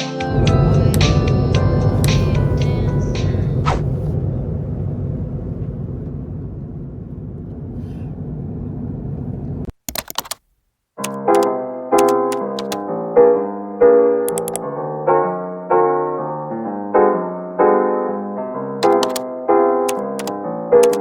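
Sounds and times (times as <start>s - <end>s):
piano chords: 0.0s - 9.7s, 11.0s - 21.0s
low rumbling hum: 0.3s - 9.7s
clicks: 9.7s - 12.8s, 14.3s - 14.6s, 18.8s - 19.2s, 19.9s - 21.0s.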